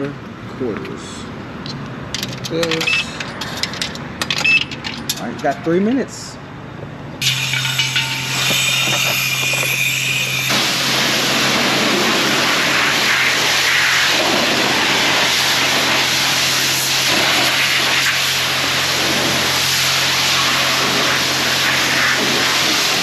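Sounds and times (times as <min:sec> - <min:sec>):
low hum: 0:07.2 - 0:12.4
pressure washer spraying water: 0:07.2 - 0:23.0.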